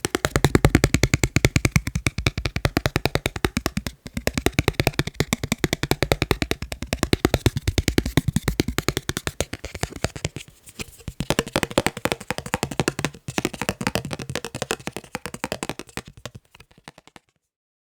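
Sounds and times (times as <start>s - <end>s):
fast rhythmic tapping: 0.0s - 17.3s.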